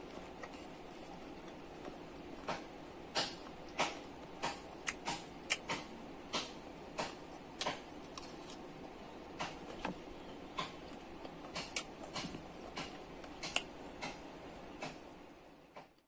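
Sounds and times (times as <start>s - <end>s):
crunchy corn kernels chewed: 0.0s - 2.6s.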